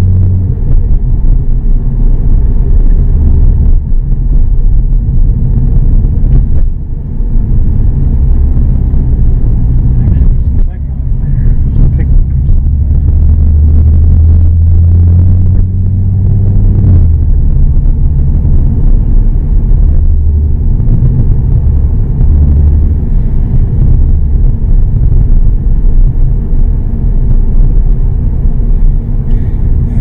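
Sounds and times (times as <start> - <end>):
car engine droning inside cabin: 0.0 - 30.0.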